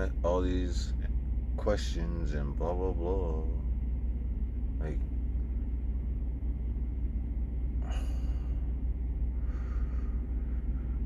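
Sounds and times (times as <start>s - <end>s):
man sighing: 7.8s - 8.6s
man breathing: 7.8s - 11.0s.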